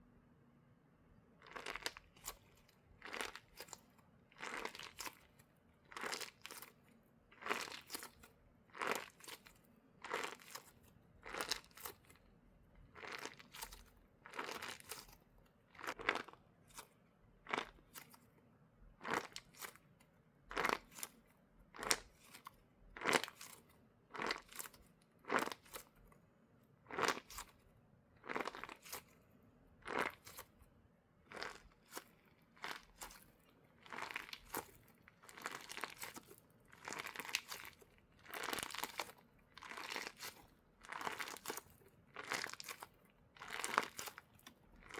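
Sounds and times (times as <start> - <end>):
squishy toy crunching: 1.4 - 6.8, 7.4 - 12.2, 12.9 - 15.1, 15.8 - 16.9, 17.5 - 18.2, 19.0 - 19.8, 20.5 - 21.2, 26.9 - 27.6, 28.2 - 29.2, 29.8 - 30.6, 31.3 - 44.9.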